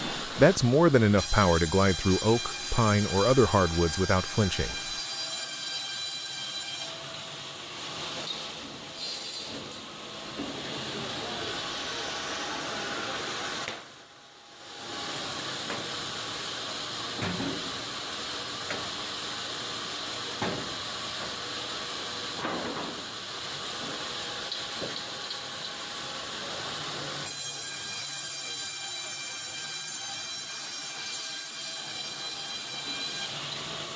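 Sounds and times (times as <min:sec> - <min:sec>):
bandsaw mill hissing: 0:00.0 - 0:05.5
steady high tones: 0:00.4 - 0:05.0.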